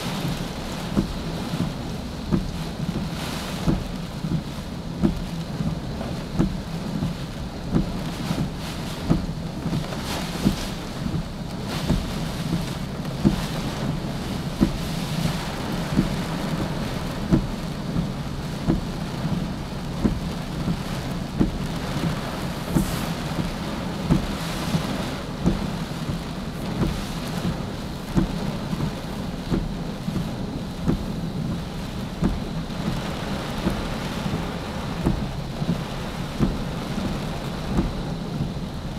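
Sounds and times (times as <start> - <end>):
heavy rain: 0.0 - 38.9
dull thump: 0.2 - 5.3, 6.4 - 13.6, 14.4 - 18.9, 20.0 - 20.8, 21.4 - 31.2, 33.6 - 36.8, 37.6 - 38.6
waterfalls roaring: 11.9 - 38.9.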